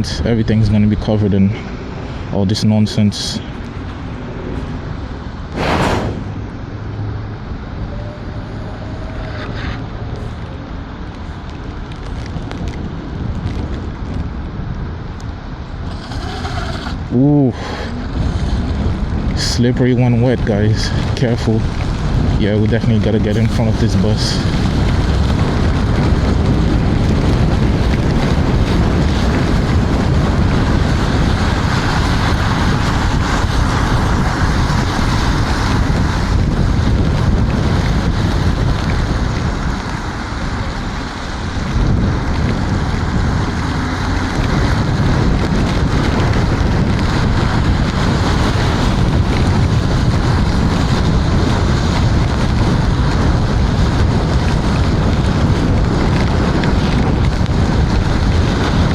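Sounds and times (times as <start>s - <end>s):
wind rush on microphone: 0.0s - 58.9s.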